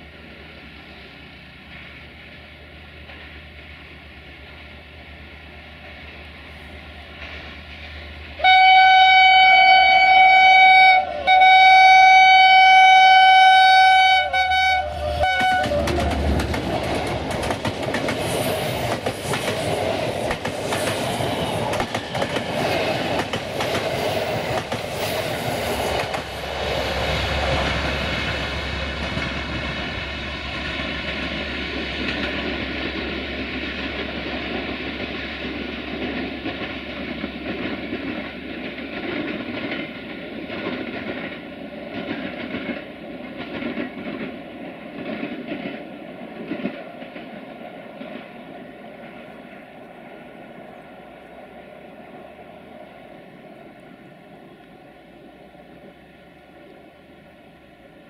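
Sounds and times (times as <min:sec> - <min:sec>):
locomotive horn chord blasts: 0:08.4 - 0:16.1
wheels clattering over rails: 0:15.2 - 0:48.4.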